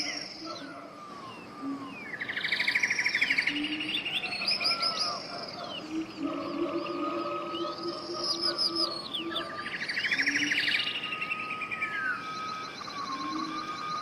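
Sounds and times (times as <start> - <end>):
birds singing: 0.0 - 14.0.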